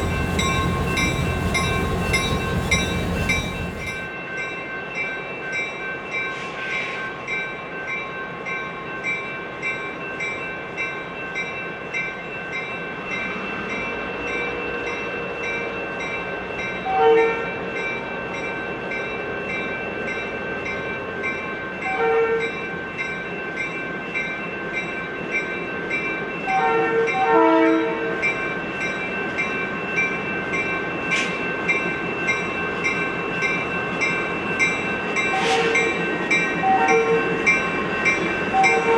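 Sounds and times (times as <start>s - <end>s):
diesel locomotive moving: 0.0s - 4.1s
locomotive bell ringing: 0.0s - 6.4s
train horn blasts: 26.6s - 28.0s.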